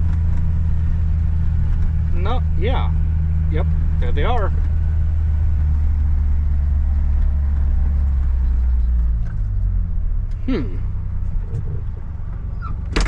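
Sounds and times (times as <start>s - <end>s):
tractor diesel engine droning: 0.0s - 13.0s
short vocal sound: 10.4s - 11.0s.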